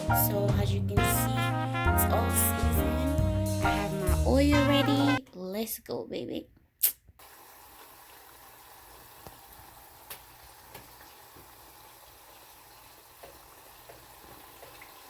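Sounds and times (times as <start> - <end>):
meat sizzling in oil: 7.2 - 15.0
oil popping: 7.2 - 15.0.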